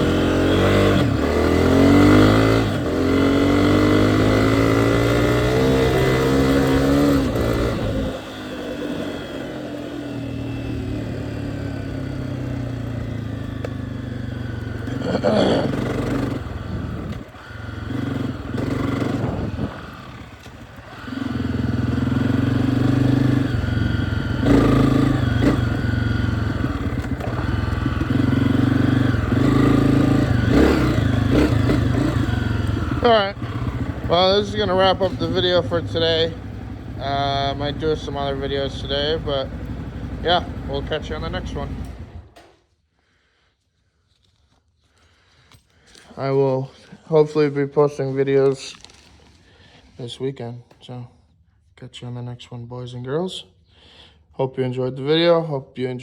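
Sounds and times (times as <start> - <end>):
dirt bike engine revving: 0.0 - 42.5.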